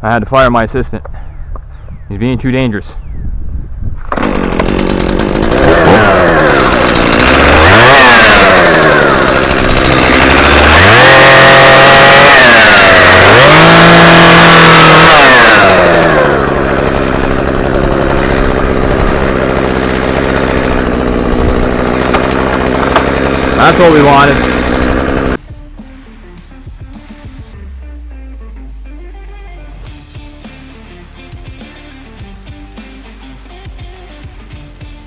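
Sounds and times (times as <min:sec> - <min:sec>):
chainsaw cutting branch: 0:04.0 - 0:25.4
chainsaw revving: 0:04.0 - 0:25.4.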